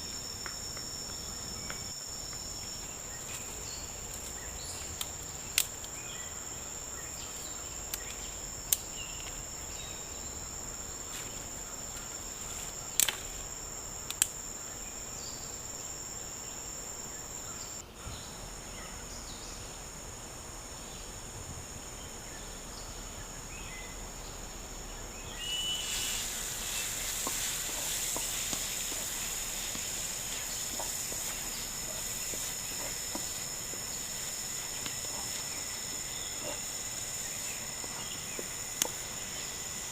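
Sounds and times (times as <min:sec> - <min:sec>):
hissy insect layer: 0:00.0 - 0:39.9
insects droning: 0:00.0 - 0:39.9.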